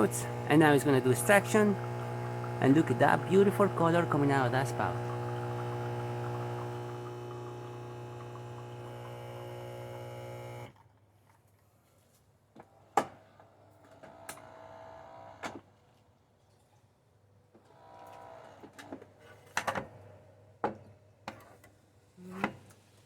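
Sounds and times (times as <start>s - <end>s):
small motor whirring: 0.0s - 10.7s.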